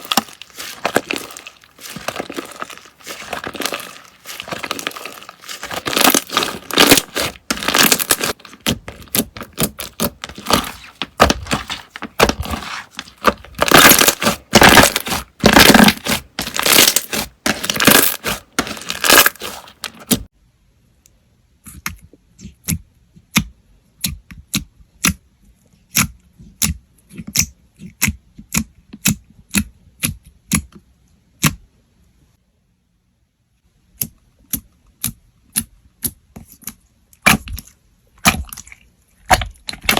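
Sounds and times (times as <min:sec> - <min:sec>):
slime popping: 0:00.0 - 0:20.2
slime crackling and tearing: 0:00.0 - 0:20.3.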